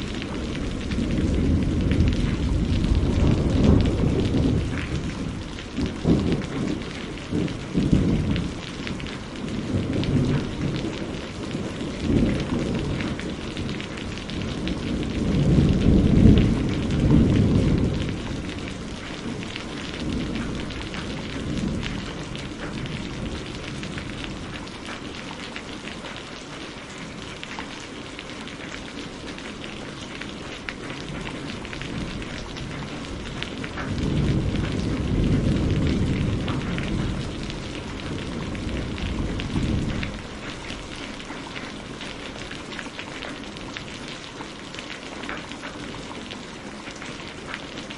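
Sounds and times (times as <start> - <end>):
rolling thunder: 0.0 - 25.0, 30.8 - 42.3
rain pattering: 0.0 - 47.9.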